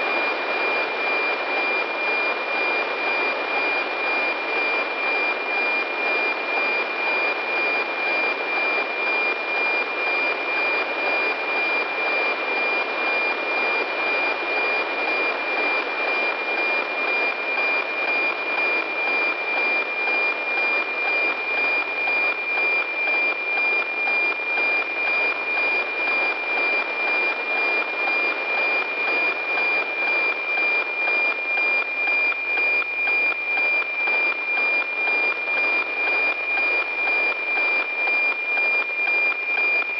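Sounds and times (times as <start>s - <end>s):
regular tick-tock: 31.3s - 39.9s.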